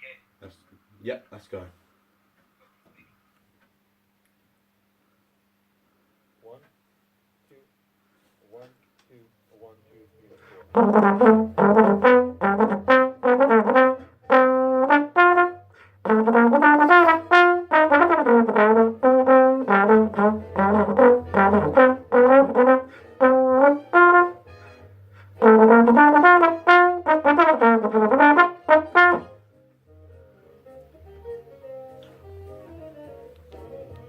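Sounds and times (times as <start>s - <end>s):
brass instrument playing jazz melody: 10.4s - 34.0s.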